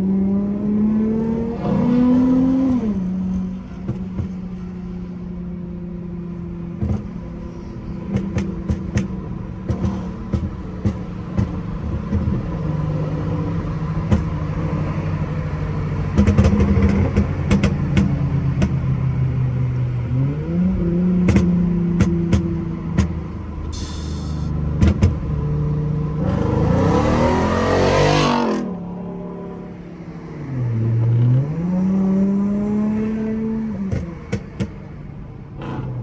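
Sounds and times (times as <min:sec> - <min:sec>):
car engine driving and revving: 0:00.0 - 0:36.0
exhaust pops and crackles: 0:08.1 - 0:19.1, 0:21.2 - 0:24.2, 0:24.8 - 0:25.4.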